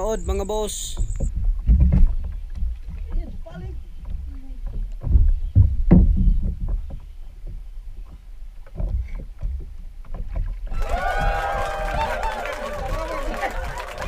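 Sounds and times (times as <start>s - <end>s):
water lapping against boat hull: 0.0s - 14.0s
thumps and knocks from hull: 1.0s - 11.3s.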